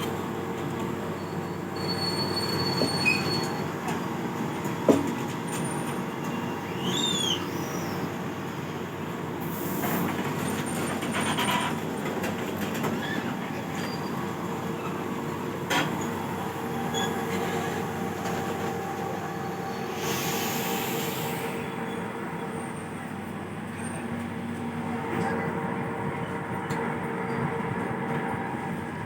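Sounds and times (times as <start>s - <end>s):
train rumbling on rails: 0.0s - 29.0s
wheel squeals: 1.2s - 3.7s, 5.6s - 8.1s, 13.0s - 15.0s.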